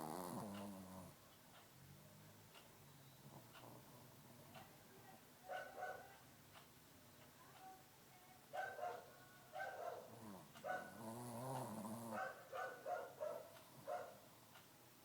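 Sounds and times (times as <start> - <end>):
dog snoring: 0.0 - 1.2, 10.1 - 12.3.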